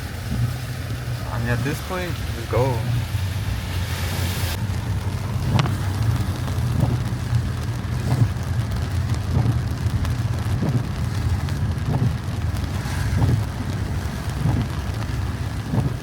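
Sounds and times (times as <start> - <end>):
engine and road rumble: 0.0 - 16.0
rain hissing on vehicle: 0.0 - 16.0
short thuds: 7.9 - 8.4, 11.8 - 13.8, 14.4 - 14.8, 15.7 - 16.0.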